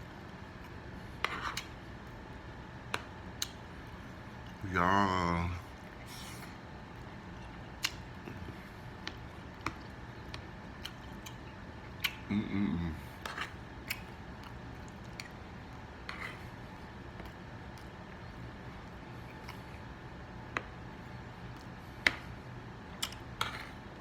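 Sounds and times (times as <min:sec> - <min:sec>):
chewing with clicks and smacks: 0:02.8 - 0:04.6, 0:05.6 - 0:20.0, 0:20.6 - 0:23.8
person humming: 0:12.2 - 0:13.1.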